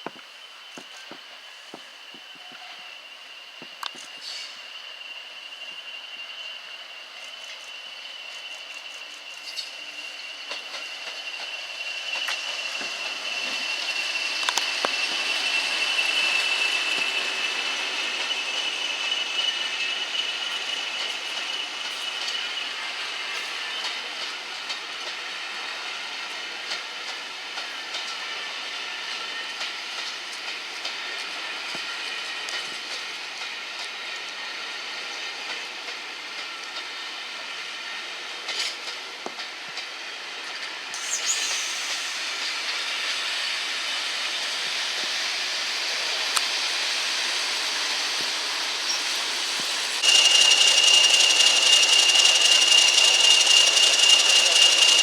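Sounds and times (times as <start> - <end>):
train wheels squealing on rails: 0.0 - 55.0
faint rail clicks: 29.1 - 33.9, 38.4 - 39.9
hissing burst: 41.0 - 43.6, 49.6 - 55.0.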